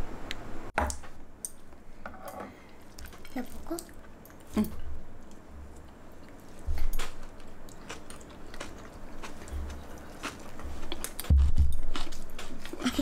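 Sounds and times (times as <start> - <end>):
person chewing food: 2.7 - 12.8.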